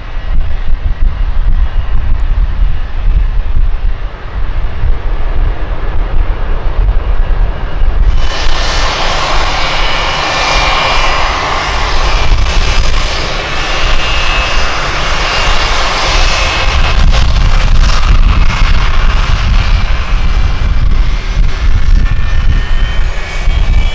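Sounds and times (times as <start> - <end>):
jet engines passing close: 0.0 - 23.9
wind buffeting microphone: 0.0 - 23.9.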